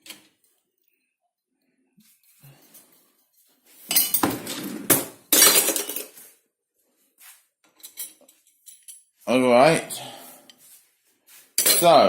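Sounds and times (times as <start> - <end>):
glassware and crockery clinking: 11.6 - 12.0.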